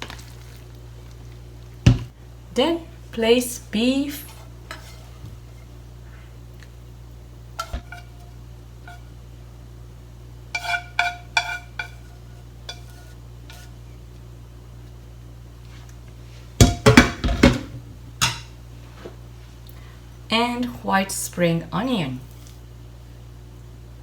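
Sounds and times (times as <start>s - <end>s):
cookware clattering: 10.6s - 12.1s, 16.6s - 18.5s
utensils clinking against a pan: 10.6s - 13.7s.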